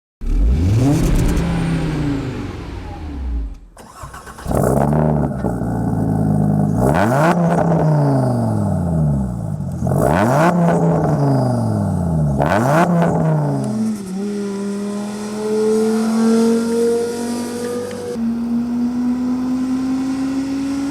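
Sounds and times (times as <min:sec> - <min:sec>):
exhaust cracks: 0:00.2 - 0:16.2
car engine revving: 0:00.2 - 0:20.9.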